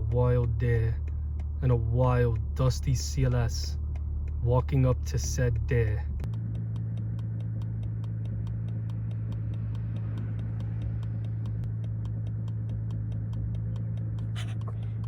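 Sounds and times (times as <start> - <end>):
car engine droning in cabin: 0.0 - 15.0.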